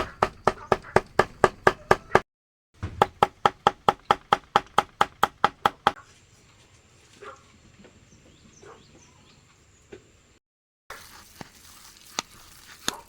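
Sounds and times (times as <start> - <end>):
rapid knocking: 0.0 - 2.2, 2.8 - 6.0.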